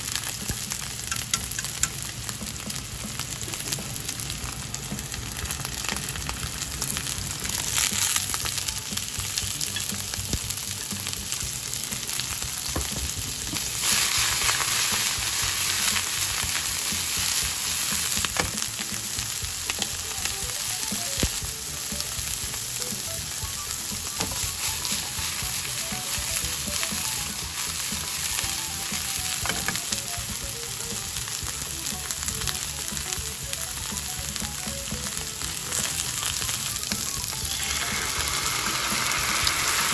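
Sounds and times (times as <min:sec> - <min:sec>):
food sizzling in oil: 0:00.0 - 0:39.9
sharp ticks: 0:01.0 - 0:02.2.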